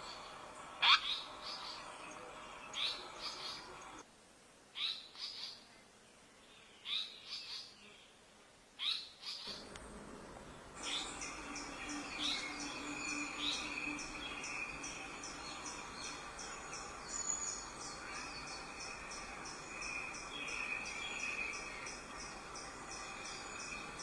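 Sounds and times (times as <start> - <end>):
insect chirping: 10.6 - 24.0.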